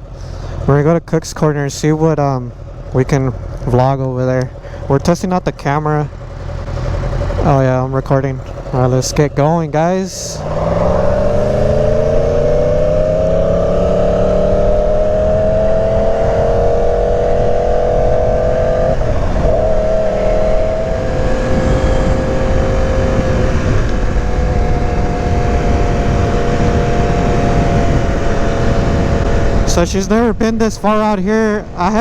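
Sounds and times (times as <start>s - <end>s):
motorcycle engine running: 0.0s - 32.0s
wind noise: 8.5s - 32.0s.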